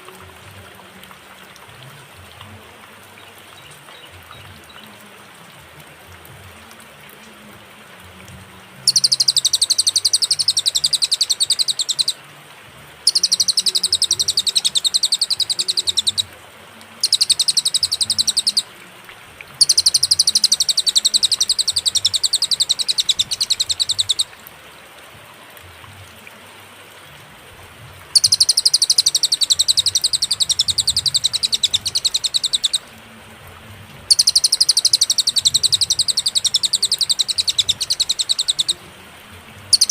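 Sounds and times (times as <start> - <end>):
songbird trilling: 8.8 - 12.2, 13.0 - 16.3, 17.0 - 18.8, 19.6 - 24.4, 28.2 - 32.9, 34.1 - 38.8.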